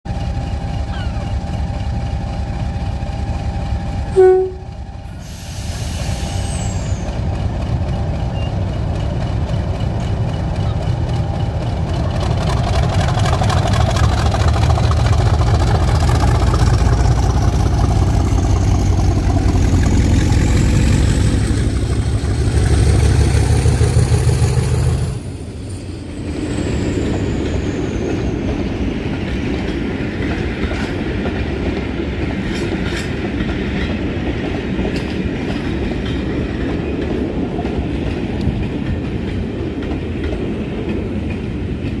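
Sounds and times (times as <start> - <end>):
diesel locomotive engine: 0.1 - 42.0
wheels clicking over rail joints: 7.2 - 23.8, 28.5 - 42.0
high engine whine: 10.5 - 27.6.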